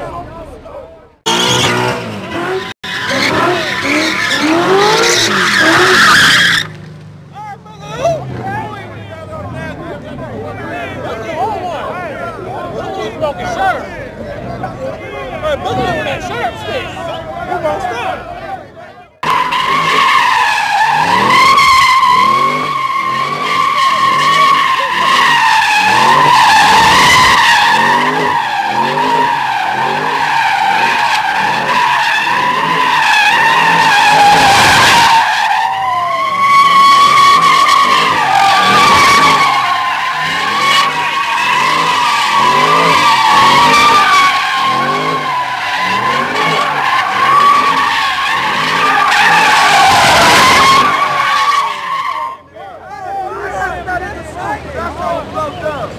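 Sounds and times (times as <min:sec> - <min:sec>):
car tyres squealing: 0:00.0 - 0:55.9
car engine revving in pulses: 0:01.2 - 0:10.9, 0:19.2 - 0:52.3.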